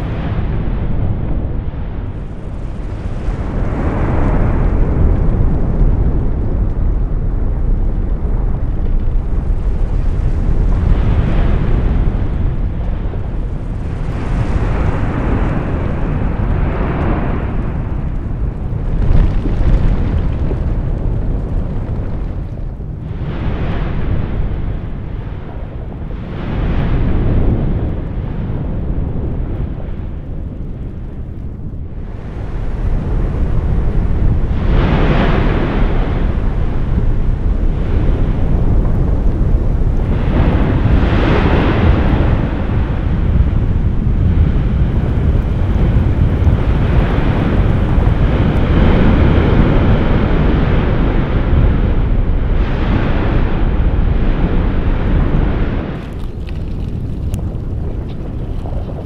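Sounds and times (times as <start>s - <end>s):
volcano deep rumble: 0.0s - 59.0s
rushing surges: 44.2s - 51.5s.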